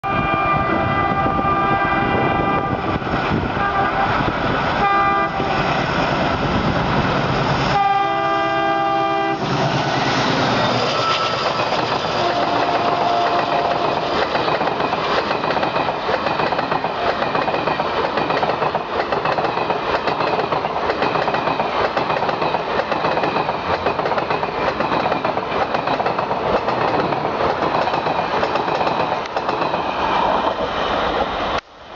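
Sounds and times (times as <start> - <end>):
locomotive horn blasts: 0.0 - 3.0, 3.6 - 4.2, 4.8 - 5.6, 7.7 - 9.5, 12.2 - 14.1
train passing rumble: 0.0 - 31.9.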